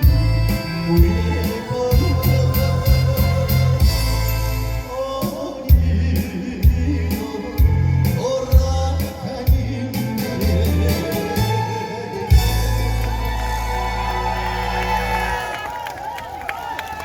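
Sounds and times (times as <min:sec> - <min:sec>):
man singing through a pa: 0:00.0 - 0:12.8
strong bass beat: 0:00.0 - 0:13.3
amplified backing track: 0:00.0 - 0:15.3.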